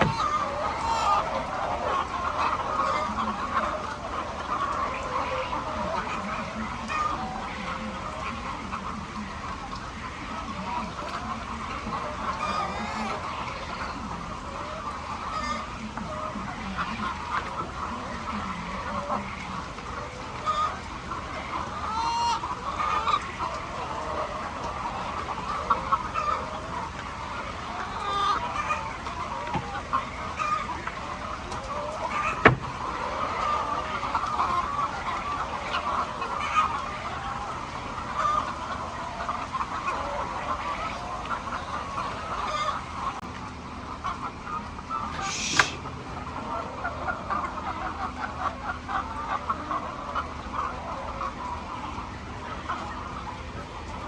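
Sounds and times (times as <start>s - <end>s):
hens clucking: 0.0s - 54.0s
high squawk: 45.1s - 45.9s
sharp click: 45.2s - 45.8s.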